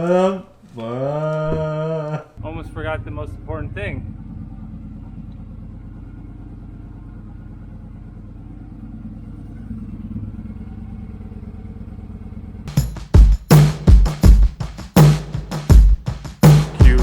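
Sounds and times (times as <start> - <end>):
motorcycle engine idling: 2.7 - 13.6
loud music with heavy drums: 12.7 - 17.0.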